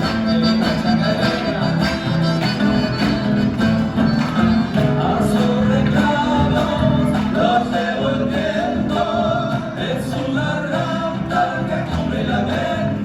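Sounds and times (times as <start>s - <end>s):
strummed guitar: 0.0s - 13.0s
person singing: 4.5s - 13.0s.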